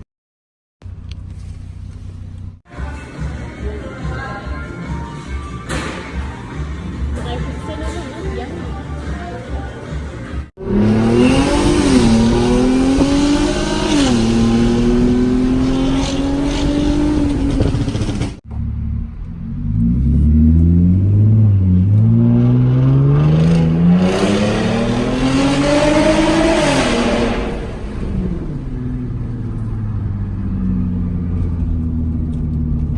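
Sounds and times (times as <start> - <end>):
car exhaust under hard acceleration: 10.6 - 32.9.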